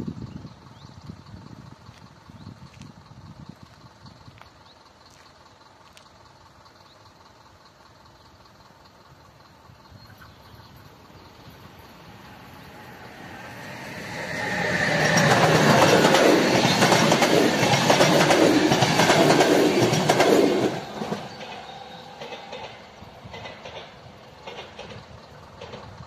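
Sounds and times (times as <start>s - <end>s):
train wheels clattering on rails: 10.0s - 26.0s.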